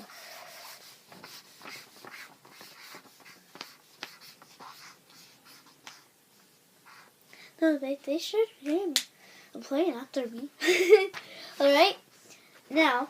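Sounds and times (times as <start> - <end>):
pen writing on paper: 0.1 - 5.7.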